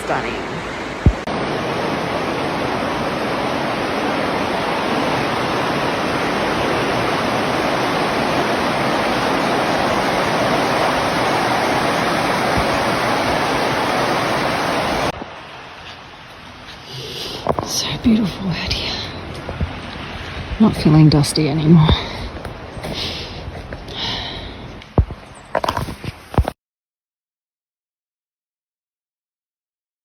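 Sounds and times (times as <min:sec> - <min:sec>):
rushing water: 0:00.0 - 0:26.6.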